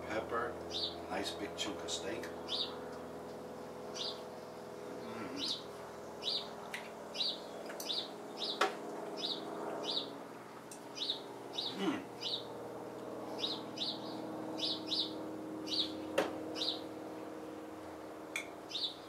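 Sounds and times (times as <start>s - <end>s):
steady low hum: 0.0s - 19.0s
bird chirping: 0.7s - 1.1s, 2.4s - 2.8s, 3.9s - 4.3s, 5.0s - 10.1s, 11.0s - 12.5s, 13.3s - 16.9s, 18.7s - 19.0s.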